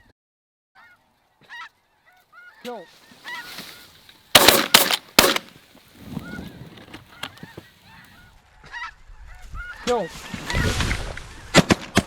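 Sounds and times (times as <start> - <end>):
snow goose calls: 0.8 - 5.5, 6.1 - 10.2
shotgun blasts: 4.3 - 5.6.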